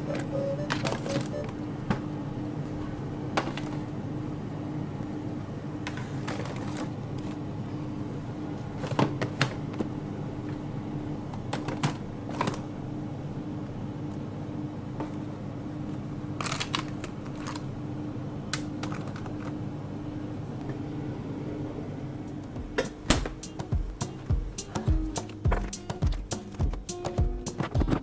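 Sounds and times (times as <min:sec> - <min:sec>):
plastic containers clicking: 0:11.4 - 0:12.7.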